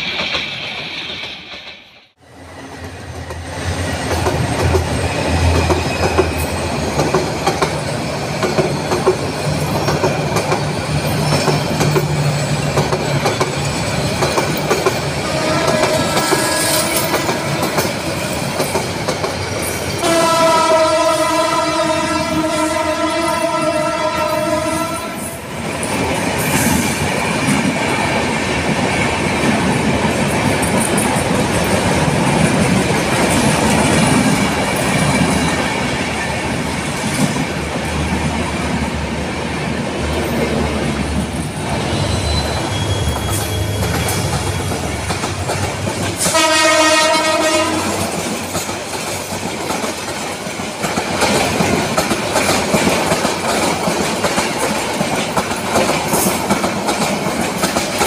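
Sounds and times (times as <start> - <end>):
train wheels rumbling on rails: 0.0 - 58.0
train horn: 15.2 - 17.8, 20.0 - 25.4, 46.2 - 48.2.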